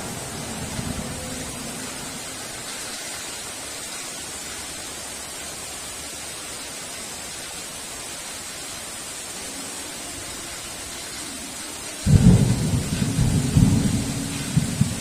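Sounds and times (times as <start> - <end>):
heavy rain: 0.0 - 15.0
thunder clap and rumble: 12.1 - 15.0.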